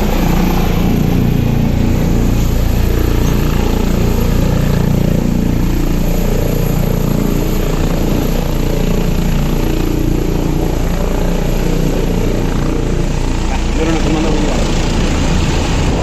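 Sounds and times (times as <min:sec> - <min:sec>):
helicopter rotor and engine drone: 0:00.0 - 0:16.0.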